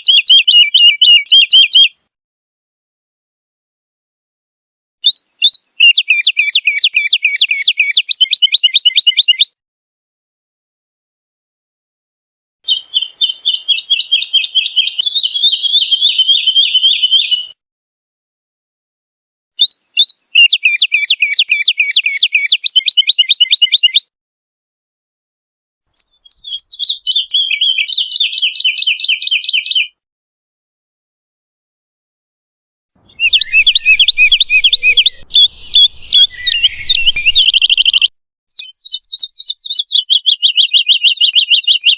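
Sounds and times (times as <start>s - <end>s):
bird singing whistled notes: 0.0s - 2.0s, 5.0s - 9.6s, 12.7s - 17.6s, 19.6s - 24.1s, 25.9s - 30.0s, 33.0s - 41.9s.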